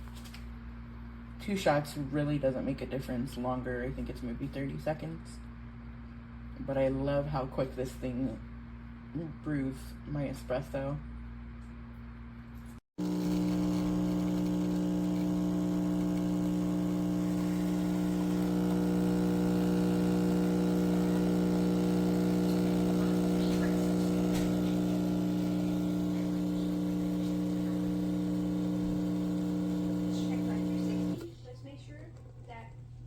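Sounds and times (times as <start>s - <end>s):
espresso machine pump humming: 13.0s - 31.4s.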